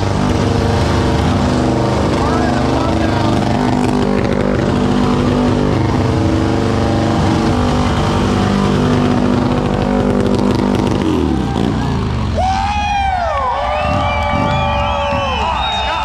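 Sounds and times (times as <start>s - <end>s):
motorcycle engines running: 0.0s - 16.0s.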